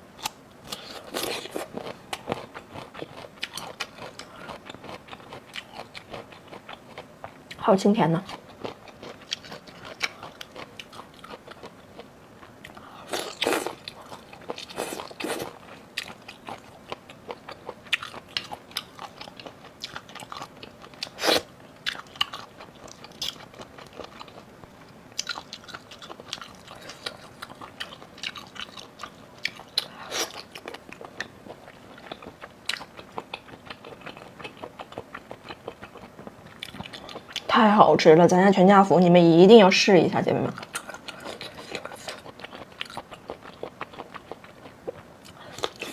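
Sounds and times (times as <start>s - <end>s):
food crunching: 0.2s - 7.6s, 8.2s - 37.5s, 40.5s - 45.9s
person chewing food: 0.2s - 7.6s, 8.2s - 37.5s, 40.6s - 45.9s.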